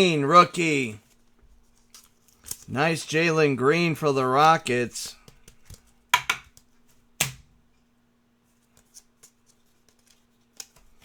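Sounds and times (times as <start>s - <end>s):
trading cards taps and clicks: 5.2s - 7.4s.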